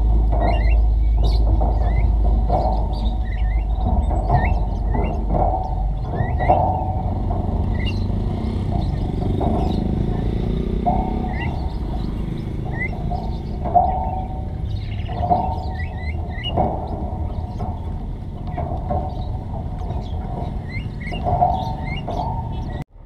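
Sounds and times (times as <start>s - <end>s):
lower bird notes: 0.0s - 22.9s
small birds chirping: 0.0s - 22.9s
steady low rumble: 0.0s - 23.0s.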